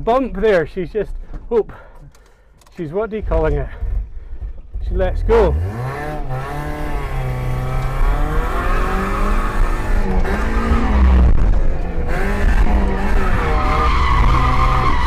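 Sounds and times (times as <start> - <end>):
car engine revving high: 3.2 - 15.0
tyres squealing: 13.0 - 15.0.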